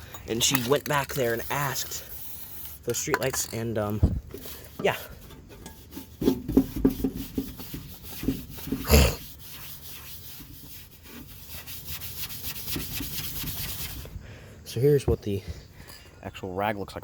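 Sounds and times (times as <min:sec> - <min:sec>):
scrape: 0:00.6 - 0:03.6, 0:04.3 - 0:14.2
cloth rag scrubbing on metal: 0:00.6 - 0:14.1.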